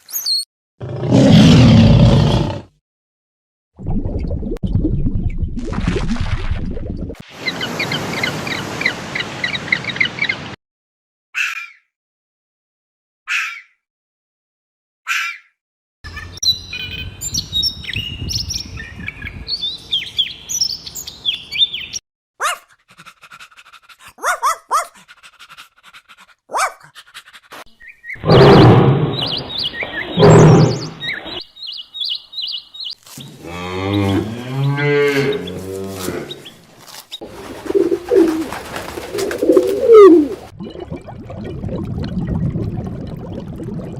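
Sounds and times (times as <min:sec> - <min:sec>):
birds chirping and twittering: 0:07.4 - 0:10.5, 0:16.1 - 0:22.0, 0:27.7 - 0:39.7.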